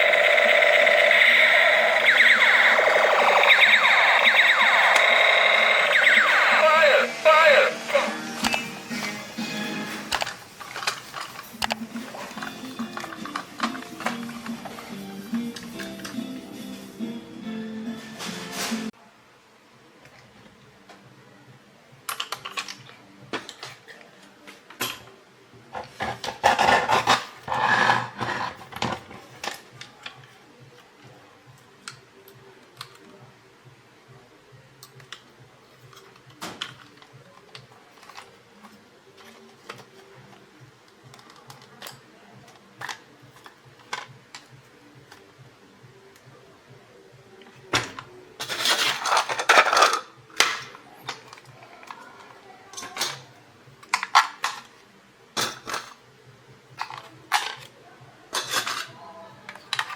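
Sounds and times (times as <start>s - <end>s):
toy parts clicking and clinking: 0.0s - 3.5s, 48.4s - 50.5s.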